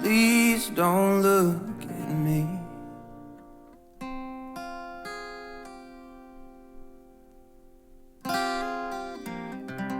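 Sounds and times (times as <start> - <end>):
acoustic guitar strumming: 0.0 - 9.9.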